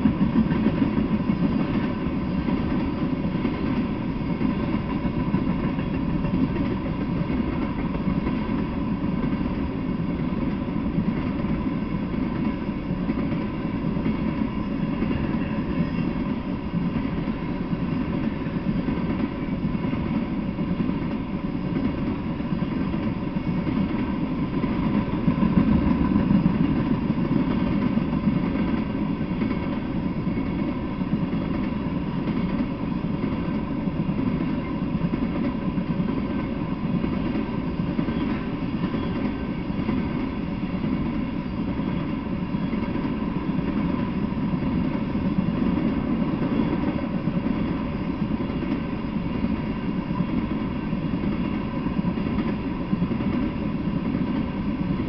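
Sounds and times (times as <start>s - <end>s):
freight train rumbling on rails: 0.0s - 55.0s.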